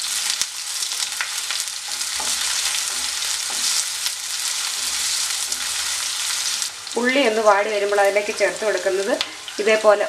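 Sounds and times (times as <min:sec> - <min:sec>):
shallots sizzling in hot oil: 0:00.0 - 0:10.0
wooden spatula scraping pan: 0:01.9 - 0:06.6.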